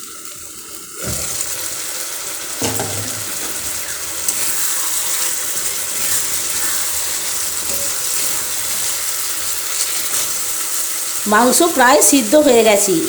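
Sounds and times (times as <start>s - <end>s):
chicken sizzling in hot oil: 0.0s - 13.0s
knock against pan: 2.6s - 3.5s.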